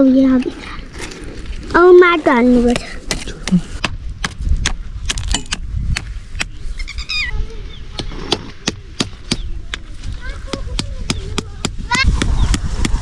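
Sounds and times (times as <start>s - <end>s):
high-pitched wavering call: 6.8s - 7.4s.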